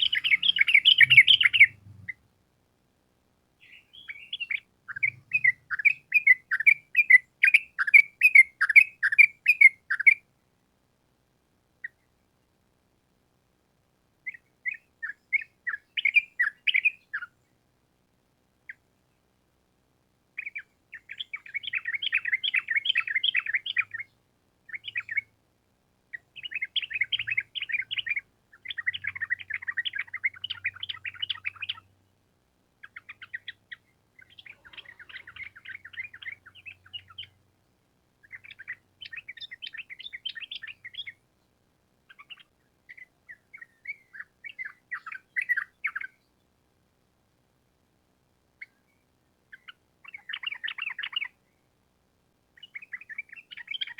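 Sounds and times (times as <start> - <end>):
bulbul singing: 0.0 - 2.2, 3.6 - 10.2, 14.3 - 17.3, 20.4 - 24.1, 24.7 - 25.3, 26.1 - 31.9, 32.8 - 37.4, 38.2 - 41.2, 42.1 - 46.2, 49.5 - 51.4, 52.6 - 53.9.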